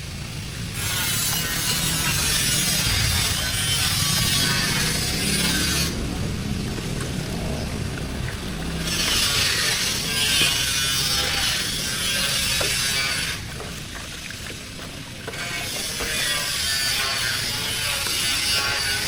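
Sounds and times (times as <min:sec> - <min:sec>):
hissing power tool: 0:00.7 - 0:06.0, 0:08.7 - 0:13.4, 0:15.3 - 0:19.0
low rumble: 0:01.4 - 0:15.2.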